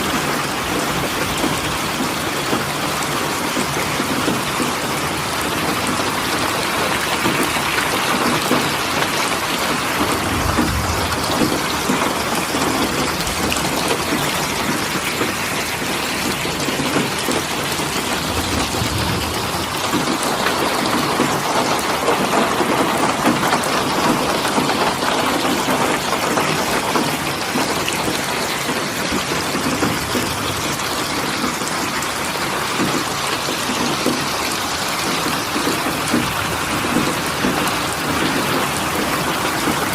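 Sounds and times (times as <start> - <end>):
heavy rainfall: 0.0 - 39.9
low rumble: 9.7 - 14.3, 18.1 - 20.4.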